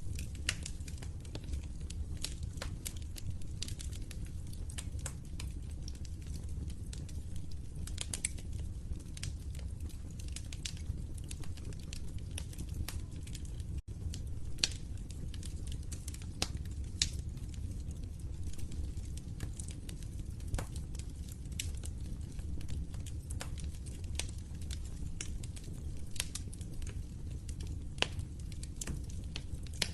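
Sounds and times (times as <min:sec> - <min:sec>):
low rumble of flames: 0:00.0 - 0:29.9
wood fire crackling: 0:00.0 - 0:29.9
sharp pops of burning wood: 0:14.2 - 0:29.9.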